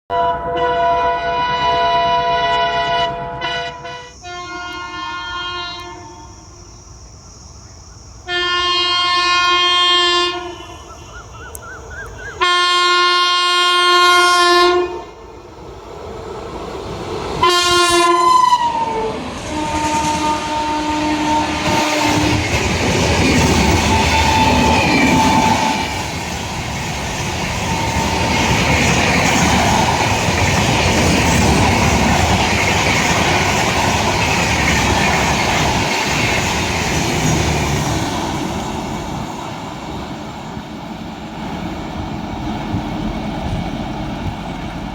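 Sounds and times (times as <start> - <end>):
locomotive horn blasts: 0.1 - 6.5, 8.3 - 10.9, 12.4 - 15.2, 17.4 - 22.5, 23.7 - 26.0
train coaches clattering on rails: 8.8 - 44.9.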